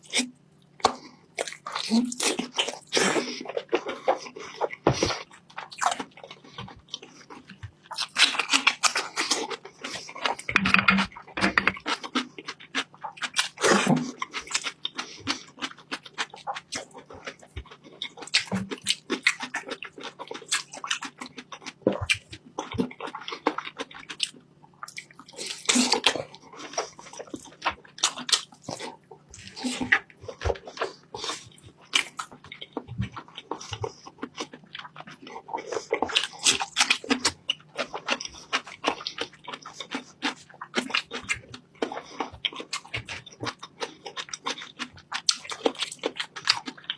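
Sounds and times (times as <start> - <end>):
person chewing and smacking: 0.0 - 46.9.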